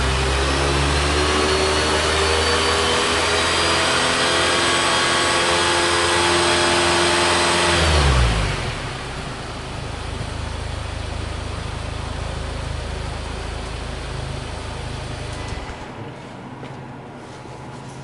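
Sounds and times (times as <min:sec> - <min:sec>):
engine idling: 0:03.8 - 0:16.3.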